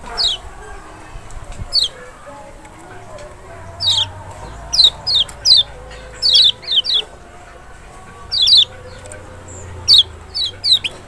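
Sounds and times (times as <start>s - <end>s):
bird sharp chirps: 0.0s - 0.5s, 3.8s - 7.2s, 8.1s - 11.0s.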